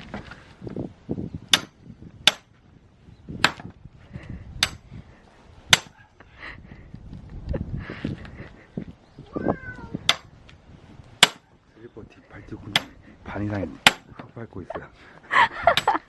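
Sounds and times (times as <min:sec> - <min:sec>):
axe cracking logs: 0:01.5 - 0:02.5, 0:03.4 - 0:03.8, 0:05.7 - 0:06.0, 0:10.1 - 0:10.3, 0:11.2 - 0:11.5, 0:13.8 - 0:14.3.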